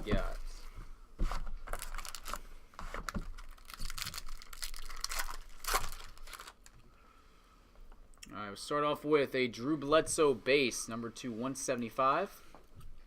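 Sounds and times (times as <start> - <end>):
wrapper crinkling and rustling: 1.3 - 6.9
card pack wrapper tearing: 1.7 - 6.8.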